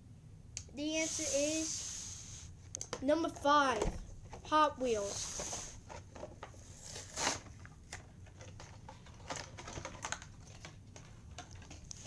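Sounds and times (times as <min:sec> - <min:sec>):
plastic packaging clicks and crinkles: 0:05.9 - 0:12.0.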